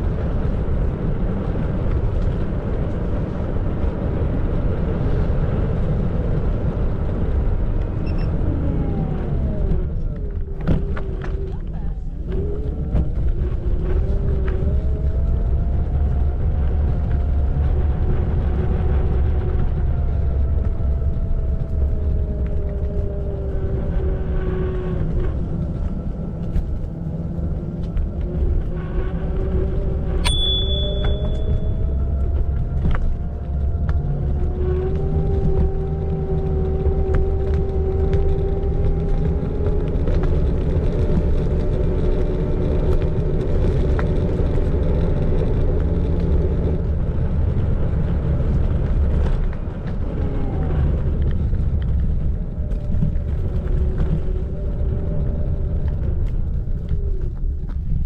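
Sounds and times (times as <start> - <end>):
electric scooter motor whine: 0.0 - 58.0
low rumble from riding: 0.0 - 58.0
sharp click with ring: 30.2 - 31.5.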